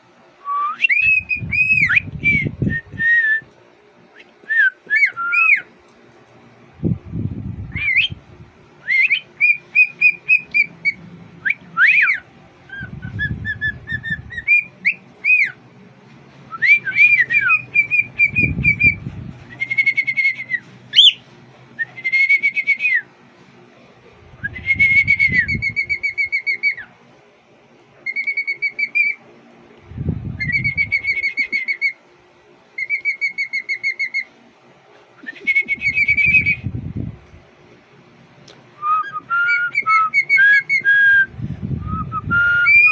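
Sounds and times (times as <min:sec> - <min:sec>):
cockatiel whistling: 0:00.5 - 0:03.4, 0:04.2 - 0:05.7, 0:07.7 - 0:08.2, 0:08.8 - 0:15.6, 0:16.5 - 0:21.2, 0:21.8 - 0:23.0, 0:24.4 - 0:26.9, 0:28.0 - 0:29.2, 0:30.4 - 0:32.0, 0:32.8 - 0:34.3, 0:35.2 - 0:36.6, 0:38.8 - 0:42.9
low rumble: 0:12.7 - 0:14.5, 0:24.1 - 0:25.8.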